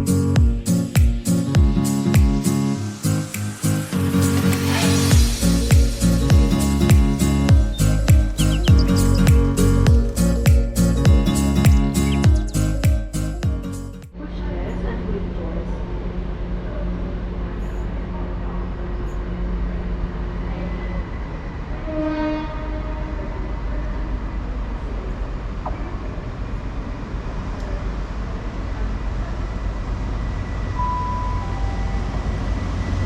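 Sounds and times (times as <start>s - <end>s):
train rumbling: 2.8s - 12.8s
train horn toot: 21.8s - 23.7s.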